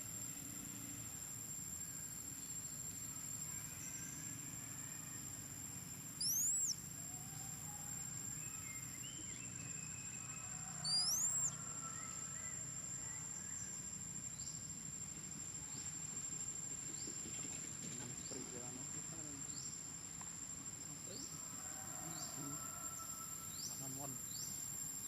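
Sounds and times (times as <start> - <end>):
faint bird chirps: 6.1 - 13.8
bird whistle call: 6.2 - 6.8, 10.8 - 11.5
high-pitched whine: 6.2 - 7.6.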